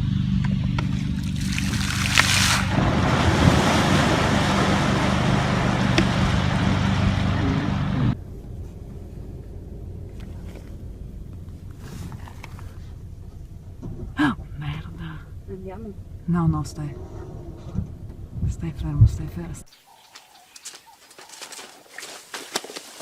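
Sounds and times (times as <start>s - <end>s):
boat engine drone: 0.0s - 17.6s.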